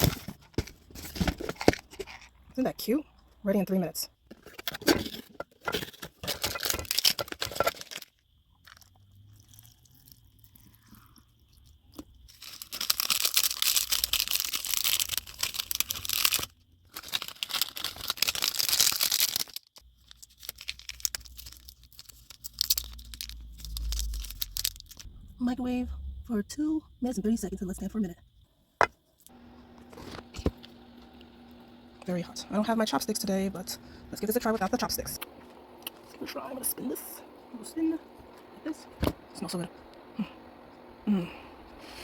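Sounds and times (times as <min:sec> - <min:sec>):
plastic wrapping tearing and crinkling: 0:04.8 - 0:08.8, 0:12.3 - 0:25.1
low rumble: 0:23.3 - 0:27.3.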